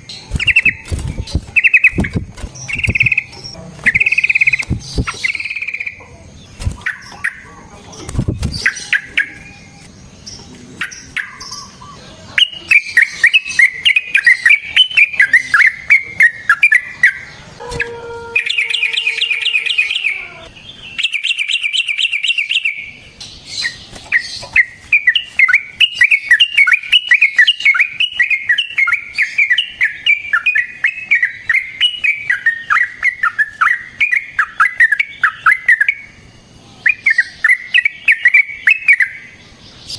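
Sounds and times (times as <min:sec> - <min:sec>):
bird song bubbling chattering: 0:00.0 - 0:07.5
buzzy rattling bird calls: 0:00.0 - 0:07.6
bird clicks and short calls: 0:02.7 - 0:03.3, 0:03.9 - 0:06.0.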